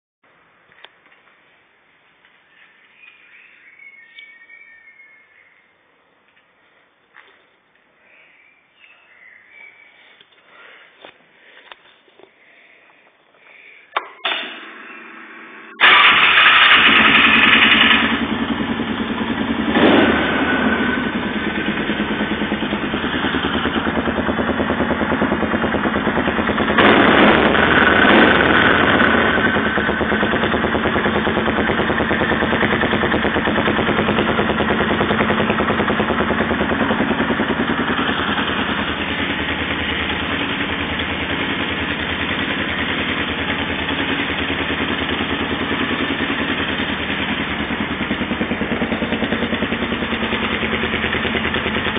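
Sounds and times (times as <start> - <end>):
engine idling and revving: 14.9 - 51.9.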